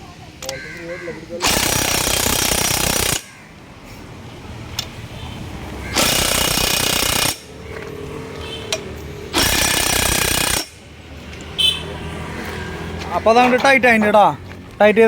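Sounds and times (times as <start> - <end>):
pneumatic impact wrench: 1.4 - 3.3, 5.9 - 7.6, 8.7 - 10.9.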